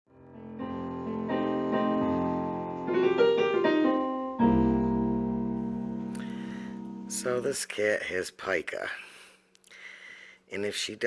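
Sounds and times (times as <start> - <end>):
piano melody over chords: 0.1 - 7.5.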